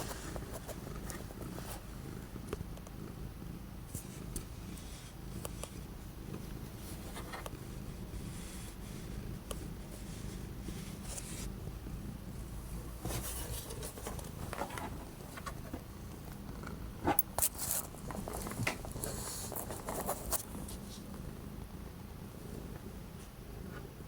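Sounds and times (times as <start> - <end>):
cat purring: 0.0 - 24.0
rustles and light taps: 12.9 - 16.0, 17.1 - 21.2.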